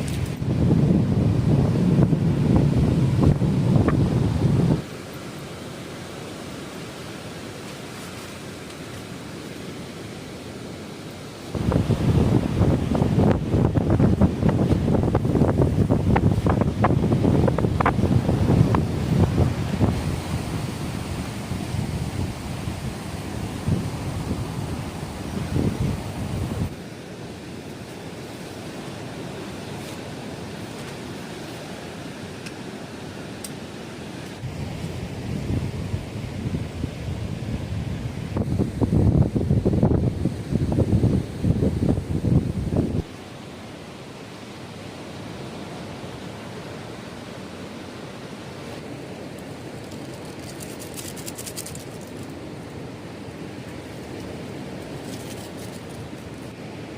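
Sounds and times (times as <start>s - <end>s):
wind buffeting microphone: 0.0s - 4.9s, 11.5s - 26.8s, 34.4s - 43.1s
surf rushing: 0.0s - 56.9s
high crackle of rustling: 49.3s - 56.7s.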